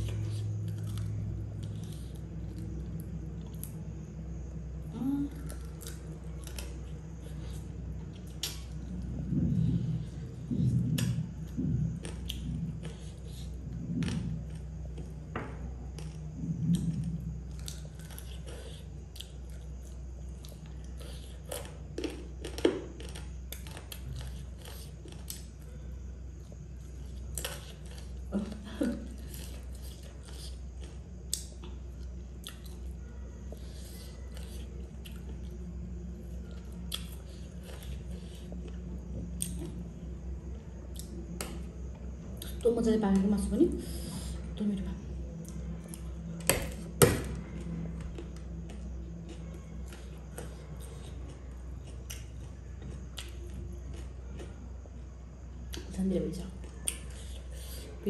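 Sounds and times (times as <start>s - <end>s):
steady low hum: 0.0s - 58.0s
person chewing and biting: 15.9s - 25.7s.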